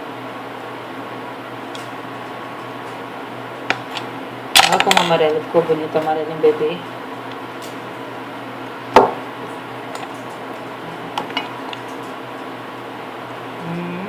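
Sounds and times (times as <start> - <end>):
tools knocking on a table: 9.0 - 9.2.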